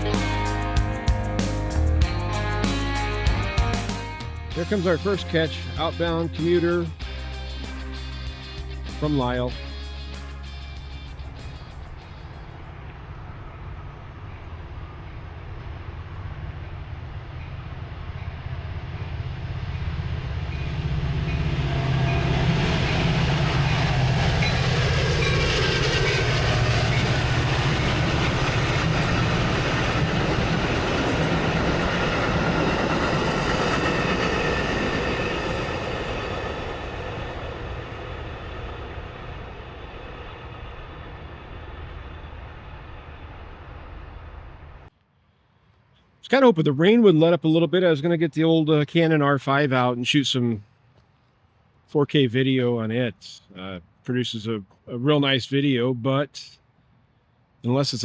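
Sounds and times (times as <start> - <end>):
train cars running on rails: 0.0 - 45.0
diesel locomotive engine drone: 0.0 - 48.2.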